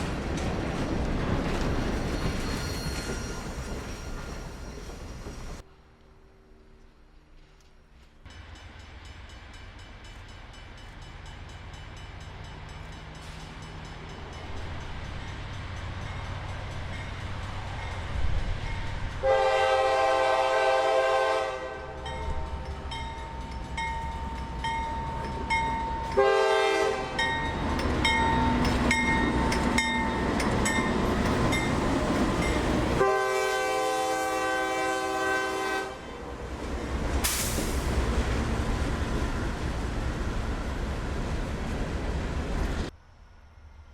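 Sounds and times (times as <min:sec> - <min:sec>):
multi-tone air horn blasts: 0:19.2 - 0:22.0, 0:26.2 - 0:27.2, 0:33.0 - 0:36.0.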